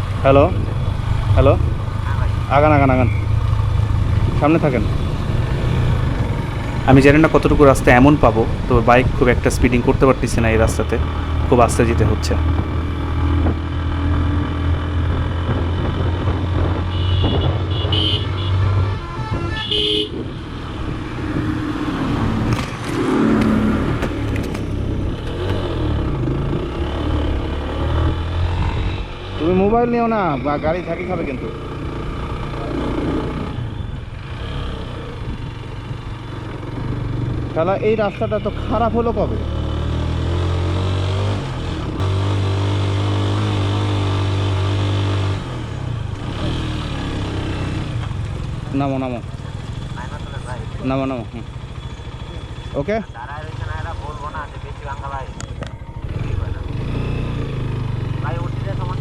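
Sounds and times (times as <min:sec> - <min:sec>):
motorcycle engine running: 0:00.0 - 0:18.1, 0:45.4 - 0:59.0
vehicle horn toot: 0:16.9 - 0:20.2.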